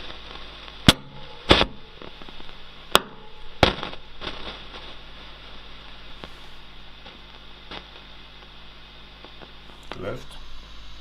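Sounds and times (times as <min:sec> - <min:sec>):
speaker pops and crackles: 0:00.0 - 0:10.4
amplifier hiss and hum: 0:00.0 - 0:11.0.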